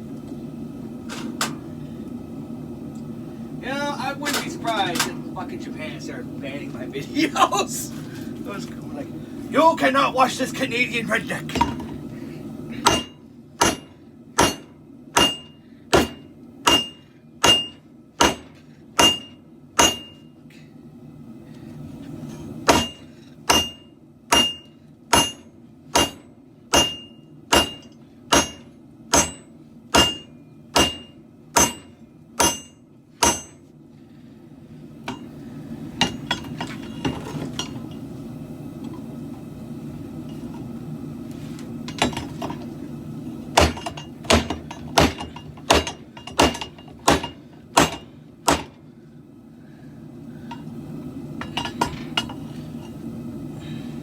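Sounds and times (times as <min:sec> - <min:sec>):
hammer striking blade: 0:12.8 - 0:20.2, 0:22.7 - 0:33.6, 0:43.6 - 0:48.7.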